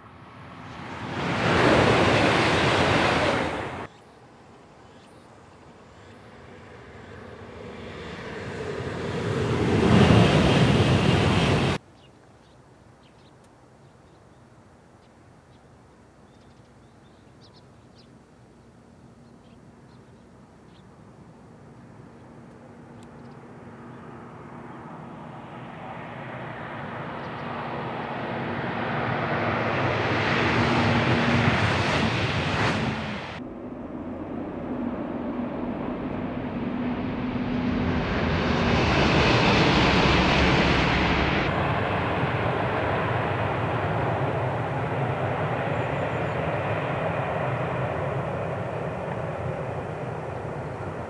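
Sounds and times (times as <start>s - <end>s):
high-speed train rushing past: 0.0s - 4.5s, 5.7s - 11.8s, 23.6s - 51.0s.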